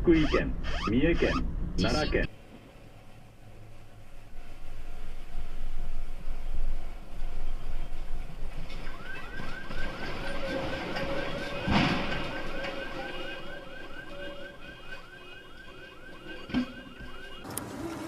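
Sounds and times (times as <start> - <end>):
electronic alarm chirping: 12.6 - 17.4.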